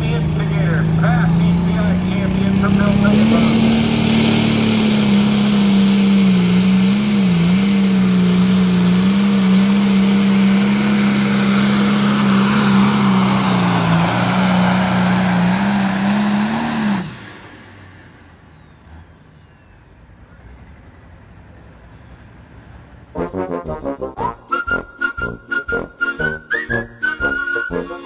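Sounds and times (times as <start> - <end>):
tractor engine at full throttle: 0.0 - 18.5, 24.2 - 28.0.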